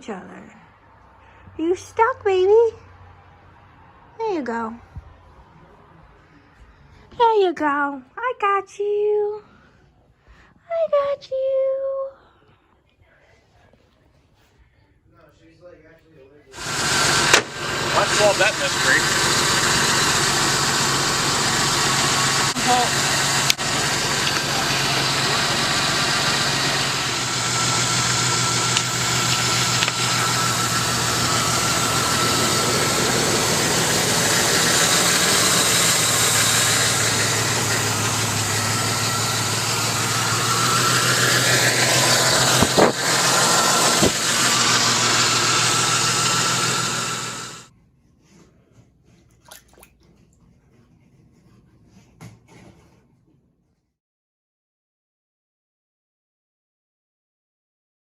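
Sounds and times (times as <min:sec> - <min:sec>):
electric motor humming: 0:16.6 - 0:47.7.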